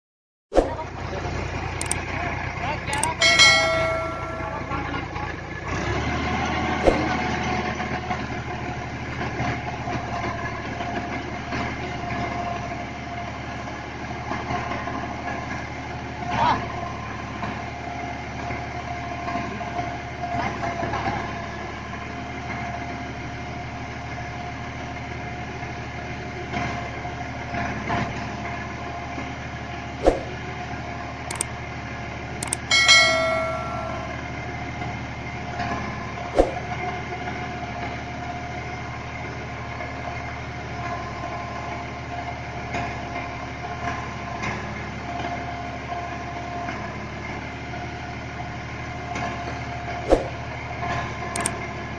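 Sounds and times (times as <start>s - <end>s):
short high-pitched tone: 3.0s - 4.9s, 32.4s - 34.3s.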